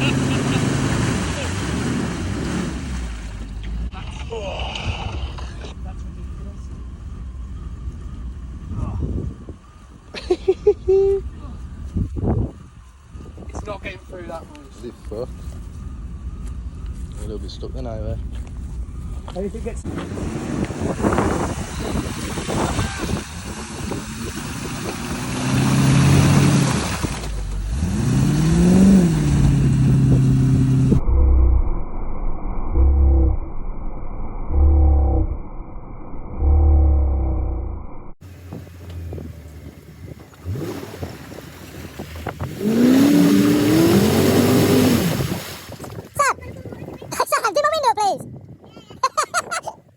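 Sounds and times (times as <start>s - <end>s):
car engine revving: 0.0s - 4.2s, 13.5s - 31.9s, 36.4s - 45.4s.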